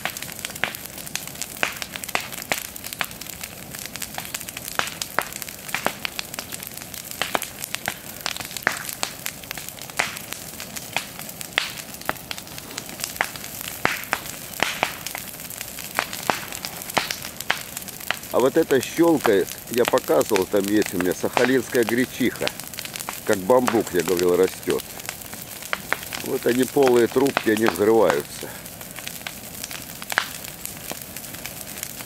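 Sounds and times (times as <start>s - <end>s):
bonfire hissing: 0.0s - 32.0s
stems snapping and popping in fire: 0.0s - 32.0s.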